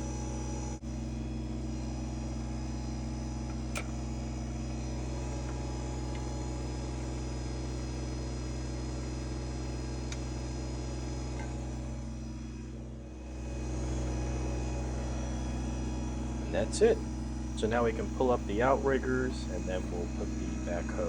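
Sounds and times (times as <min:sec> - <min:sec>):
tractor diesel engine idling: 0:03.0 - 0:21.0
sharp click: 0:03.5 - 0:04.0.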